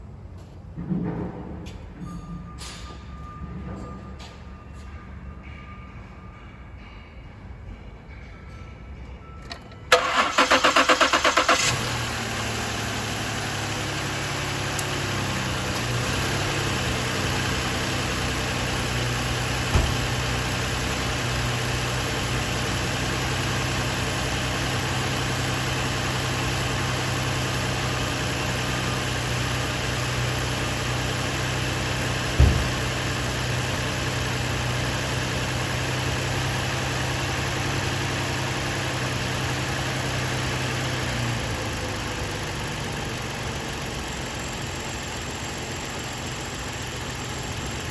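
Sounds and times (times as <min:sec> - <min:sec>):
engine starter cranking: 0:09.5 - 0:22.2, 0:32.0 - 0:34.0
engine idling: 0:09.9 - 0:47.9
short knocks: 0:19.7 - 0:20.2.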